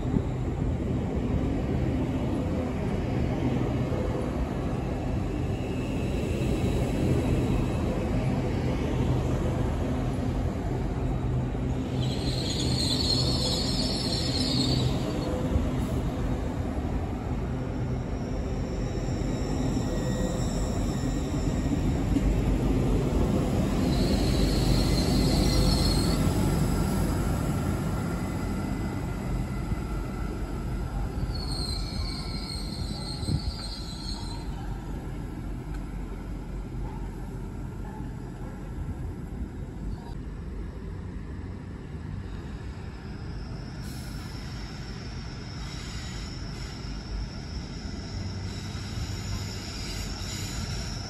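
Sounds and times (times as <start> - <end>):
high squeal: 12.0 - 15.5, 18.2 - 21.8, 23.7 - 27.6, 31.2 - 34.6, 43.3 - 51.0.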